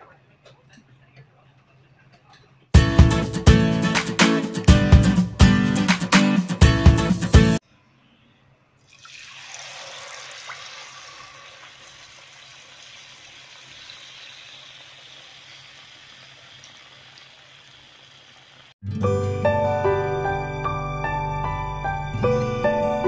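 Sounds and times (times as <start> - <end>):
fish frying in hot oil: 9.0 - 18.8
soft background music: 18.8 - 23.0.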